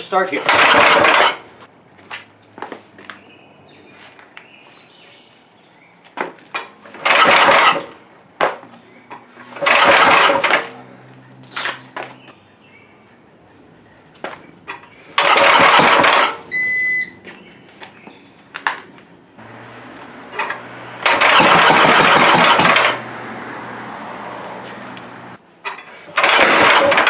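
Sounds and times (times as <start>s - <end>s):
tractor engine cranking: 0.0s - 1.7s, 6.5s - 8.0s, 9.1s - 10.9s, 14.7s - 16.9s, 19.4s - 23.1s, 25.6s - 27.0s.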